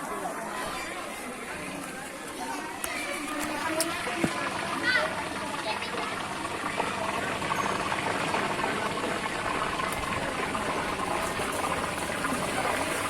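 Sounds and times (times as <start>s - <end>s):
underground water rushing: 3.5s - 13.0s.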